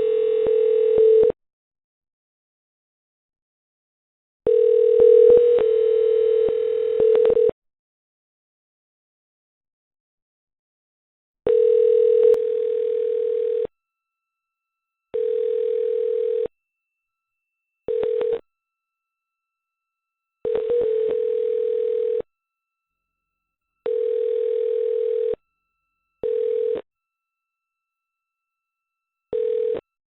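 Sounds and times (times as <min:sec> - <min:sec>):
telephone dial tone: 0:00.0 - 0:01.4, 0:04.5 - 0:07.5, 0:11.5 - 0:13.7, 0:15.2 - 0:16.5, 0:17.9 - 0:18.4, 0:20.5 - 0:22.2, 0:23.9 - 0:25.4, 0:26.2 - 0:26.8, 0:29.3 - 0:29.8.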